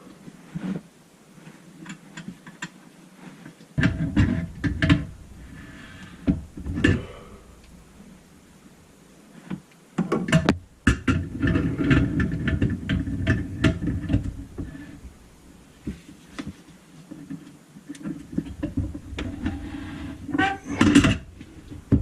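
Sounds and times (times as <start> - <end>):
sink parts clicking and clattering: 3.8 - 7.1, 10.0 - 14.8, 17.9 - 22.0.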